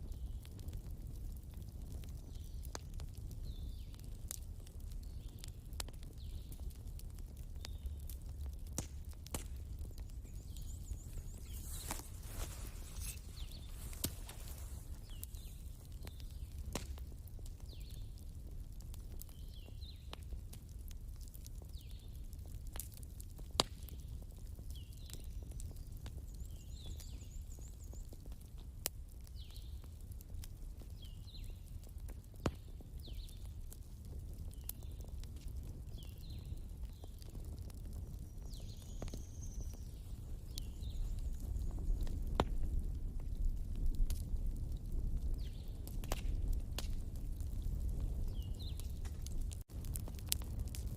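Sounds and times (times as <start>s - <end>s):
wood fire crackling: 0.0s - 50.9s.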